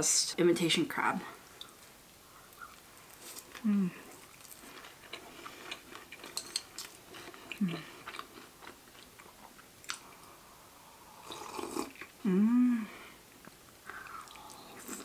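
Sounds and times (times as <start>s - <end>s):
close chewing with mouth clicks: 1.4s - 10.4s, 13.3s - 15.0s
person humming: 3.6s - 4.1s, 12.2s - 13.2s.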